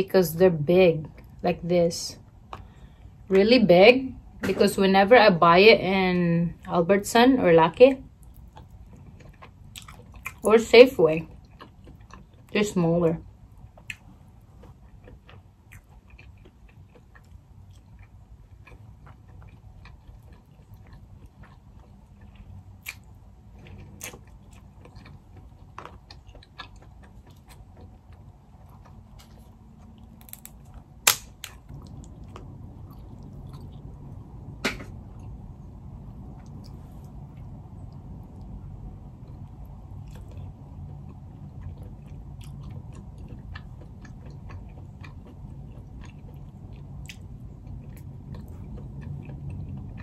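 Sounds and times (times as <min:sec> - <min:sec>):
person chewing: 0:02.4 - 0:03.1, 0:08.2 - 0:10.5, 0:11.3 - 0:12.5, 0:13.5 - 0:34.1, 0:39.2 - 0:50.0
crab legs snapping: 0:30.2 - 0:31.8.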